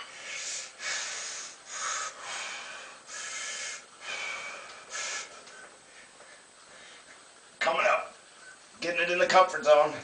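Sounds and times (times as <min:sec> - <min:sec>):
man breathing hard: 0:00.0 - 0:07.3.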